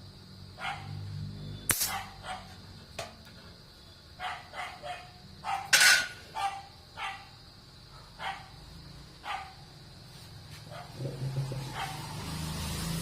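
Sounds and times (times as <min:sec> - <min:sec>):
dog barking: 0:00.6 - 0:01.0, 0:01.9 - 0:02.6, 0:04.2 - 0:07.3, 0:07.9 - 0:08.6, 0:09.2 - 0:09.6, 0:10.7 - 0:11.0, 0:11.7 - 0:12.1.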